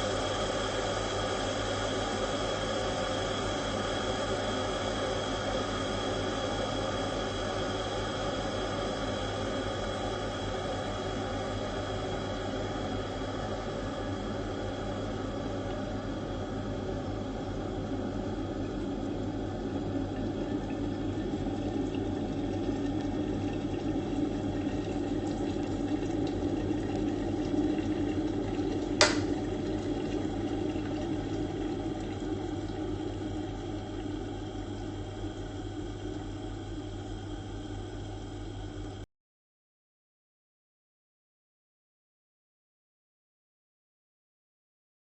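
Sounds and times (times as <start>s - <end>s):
kettle water boiling: 0.0s - 39.0s
kettle switch click: 29.0s - 29.3s.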